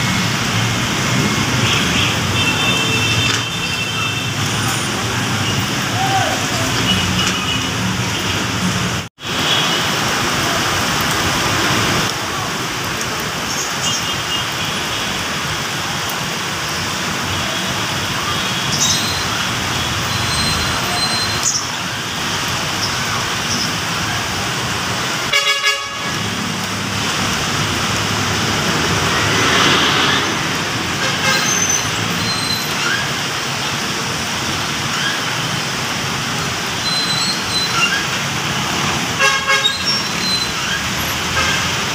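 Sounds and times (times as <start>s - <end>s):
city road traffic: 0.0s - 41.9s
car horns tooting: 25.3s - 26.3s.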